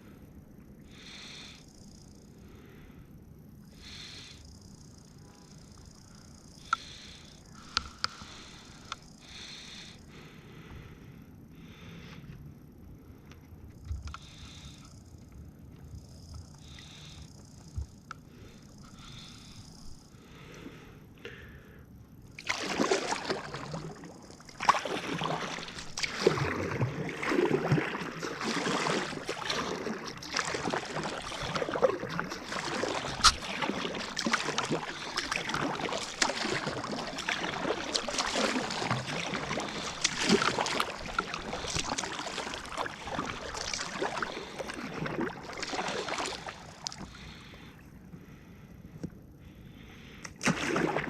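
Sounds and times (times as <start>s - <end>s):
kayak paddle splashing: 22.3s - 47.8s, 50.2s - 51.0s
water washing along hull: 22.4s - 47.8s, 50.4s - 51.0s.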